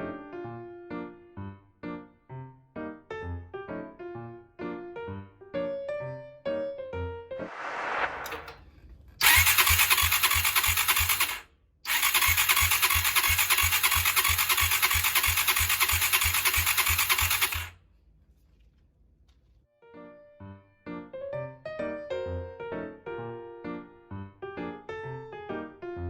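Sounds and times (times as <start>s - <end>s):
electric starter cranking engine: 9.2s - 17.8s.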